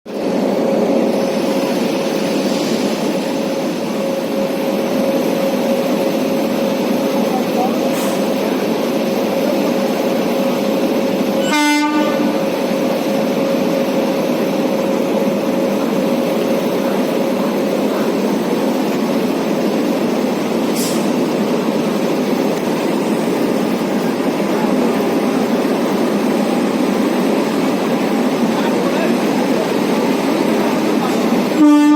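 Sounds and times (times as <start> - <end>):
train rolling rumble: 0.1 - 31.9
train horn blast: 11.4 - 12.5, 31.5 - 31.9.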